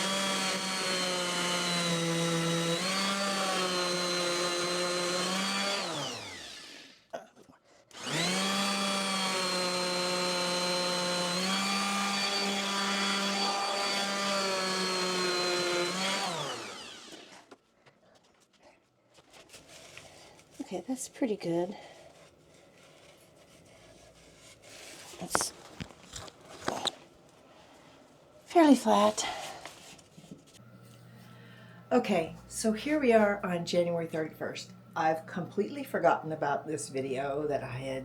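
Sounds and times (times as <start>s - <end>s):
electric sander motor whine: 0.0s - 7.0s, 8.0s - 17.5s.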